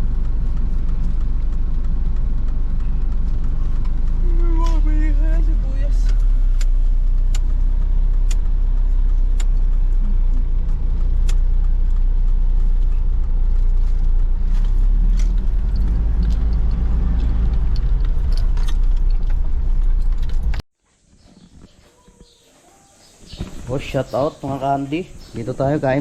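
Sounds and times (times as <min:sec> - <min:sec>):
vehicle rumble from on board: 0:00.0 - 0:20.7.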